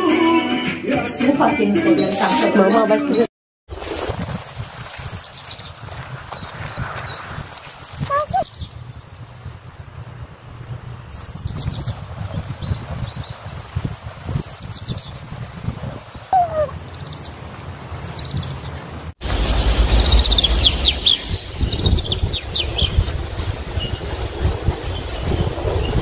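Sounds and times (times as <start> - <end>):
small birds chirping: 5.0 - 10.1, 11.0 - 17.4, 18.0 - 19.0
low background rumble: 19.2 - 24.0.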